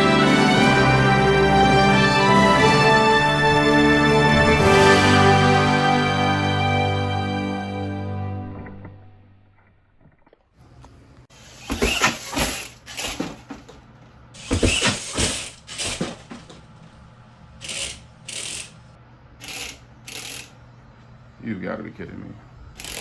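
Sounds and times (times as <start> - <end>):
toy truck drivetrain grinding: 11.4 - 13.4, 17.6 - 18.8, 19.4 - 20.5, 22.8 - 23.0.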